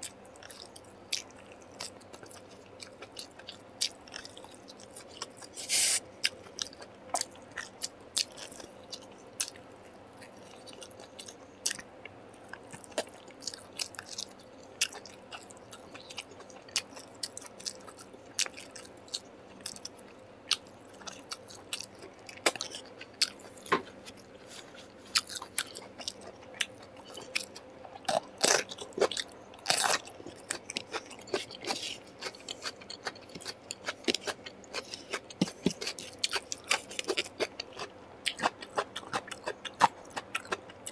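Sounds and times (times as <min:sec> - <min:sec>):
person chewing and biting: 0:12.6 - 0:40.9.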